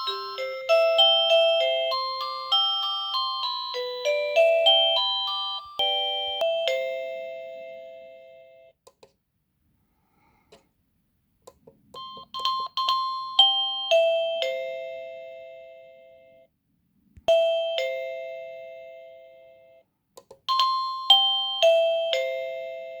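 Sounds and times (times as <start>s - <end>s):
electronic doorbell chime: 0.0s - 8.8s, 12.0s - 16.5s, 17.3s - 19.8s, 20.5s - 23.0s.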